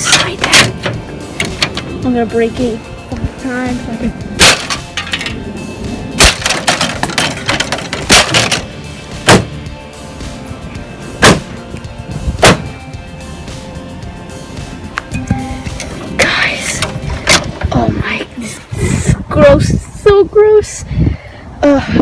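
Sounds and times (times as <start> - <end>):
casing rattling and clattering: 0.0 - 2.1, 4.4 - 5.5, 6.2 - 9.5, 15.0 - 17.8.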